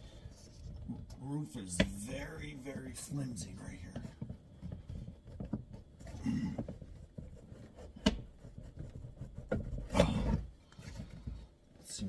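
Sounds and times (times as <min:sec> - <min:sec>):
wooden block rubbing metal roof: 0:00.0 - 0:11.5.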